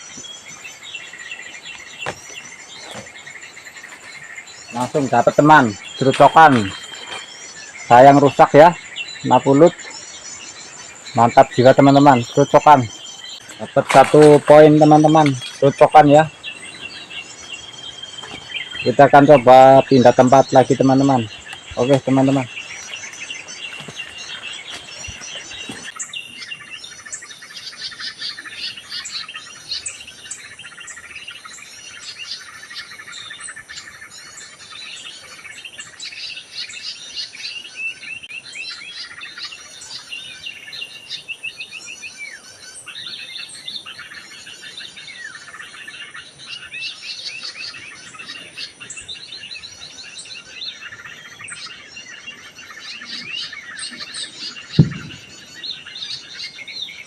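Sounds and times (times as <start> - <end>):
many small birds chirping: 0.0 - 57.0.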